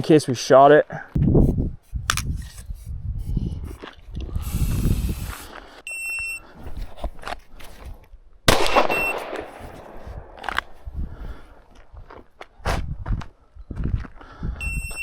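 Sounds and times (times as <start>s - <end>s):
shot timer beep: 5.9s - 6.4s, 8.8s - 9.2s, 14.6s - 15.0s
loud pistol shot with echo: 8.5s - 10.5s.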